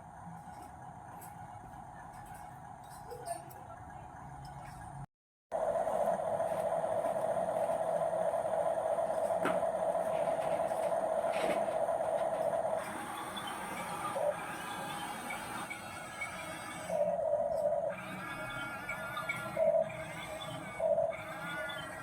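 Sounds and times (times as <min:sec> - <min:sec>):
toy electric motor whining: 0:12.7 - 0:22.0.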